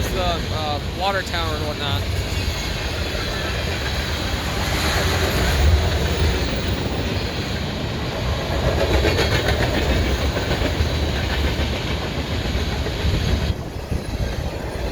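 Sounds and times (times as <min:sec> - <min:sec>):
freight train rumbling past: 0:00.0 - 0:14.9
wheels clicking over rail joints: 0:08.1 - 0:14.9.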